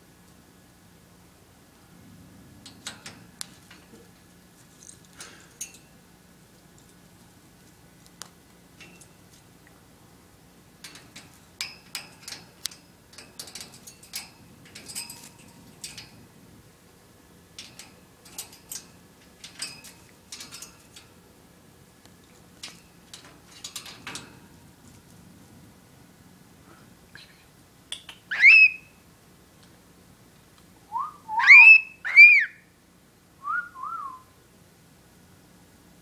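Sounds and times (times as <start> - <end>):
pet bird chirping and clicking: 27.9 - 28.8.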